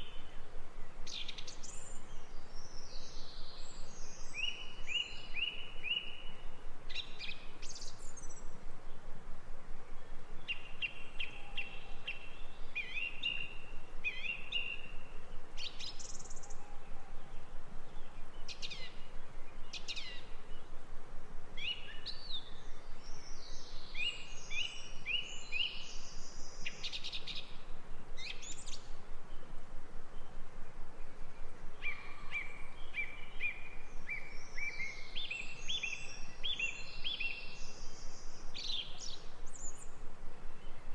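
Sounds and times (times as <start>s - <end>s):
songbirds chirping and whistling: 0.0s - 8.6s, 21.6s - 29.5s, 31.0s - 40.0s
outdoor background hiss: 0.0s - 40.9s.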